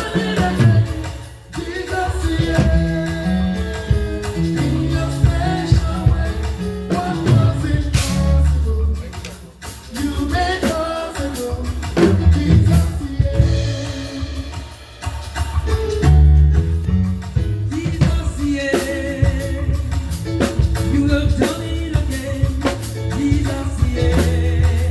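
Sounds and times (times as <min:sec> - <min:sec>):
band playing worship music: 0:00.0 - 0:24.9
bass: 0:00.0 - 0:24.9
drum kit: 0:00.0 - 0:24.9
sustained keyboard chords: 0:15.7 - 0:24.9.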